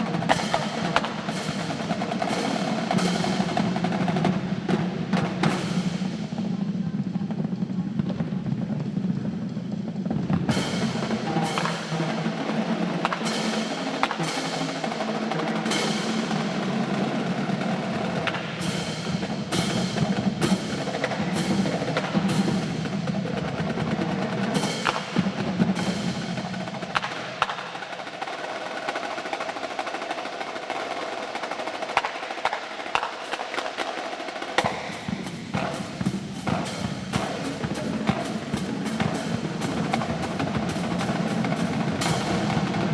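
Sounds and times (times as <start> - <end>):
snare drum rolls: 0.0 - 42.9.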